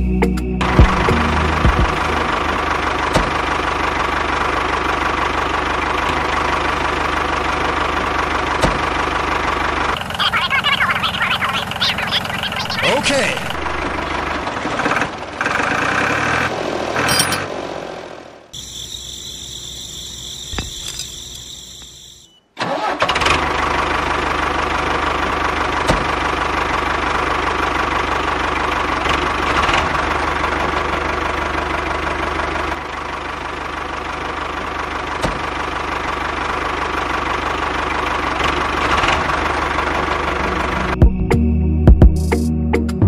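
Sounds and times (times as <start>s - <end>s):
motor running with low hum: 18.6s - 22.4s.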